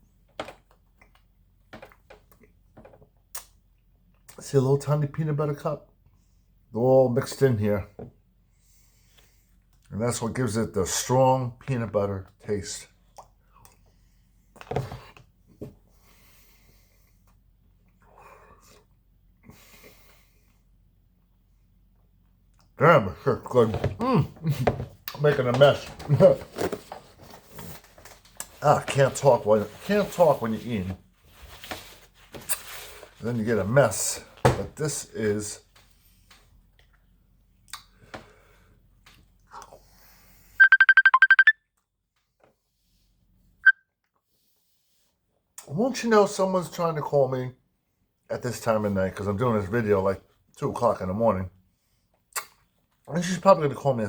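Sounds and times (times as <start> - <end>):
mobile phone ringtone beeps: 40.6 - 41.6.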